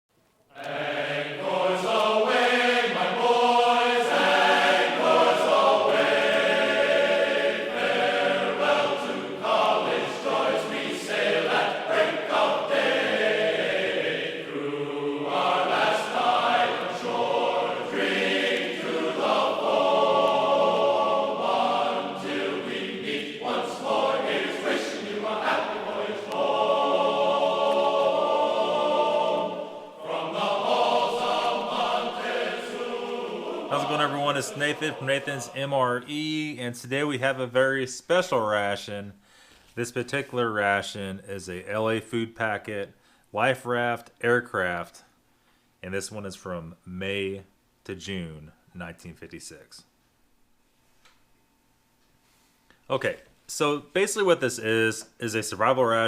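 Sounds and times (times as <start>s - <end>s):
choir singing chords: 0.5s - 36.4s.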